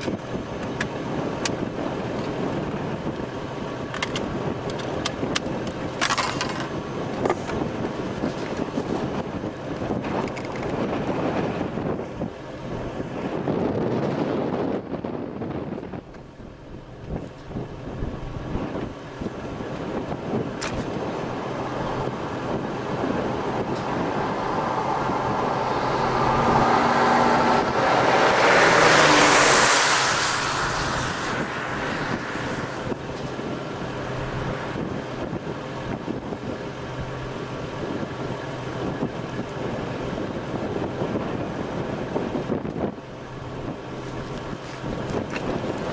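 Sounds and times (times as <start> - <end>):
low vehicle hum: 0.0 - 45.9
wind rushing over microphone: 0.0 - 45.9.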